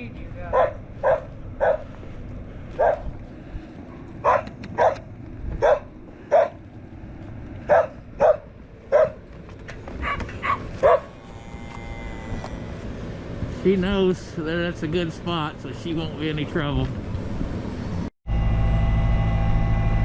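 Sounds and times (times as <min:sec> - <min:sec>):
dog barking: 0:00.5 - 0:01.9, 0:02.8 - 0:03.1, 0:04.2 - 0:06.6, 0:07.7 - 0:09.2, 0:10.0 - 0:11.1.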